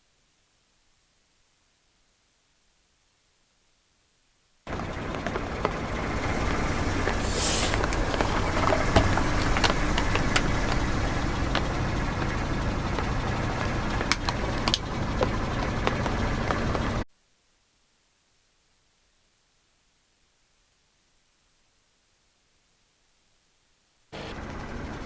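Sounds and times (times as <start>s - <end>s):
car engine running slowly: 4.7s - 17.0s, 24.2s - 25.0s
brief hiss: 7.2s - 7.8s.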